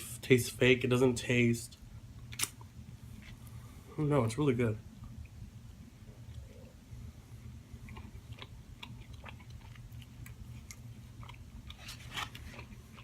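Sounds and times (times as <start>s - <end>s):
steady low hum: 0.0s - 13.0s
close-up chewing: 7.4s - 13.0s.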